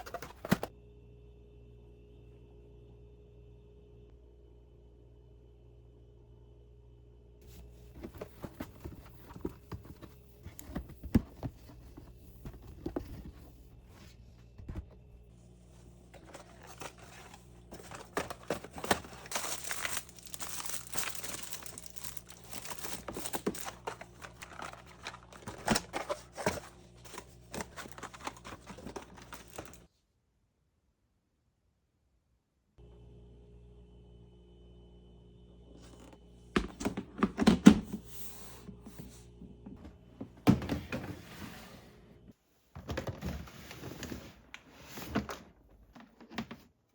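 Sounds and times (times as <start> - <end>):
packaging crinkling in hands: 16.2 - 29.8.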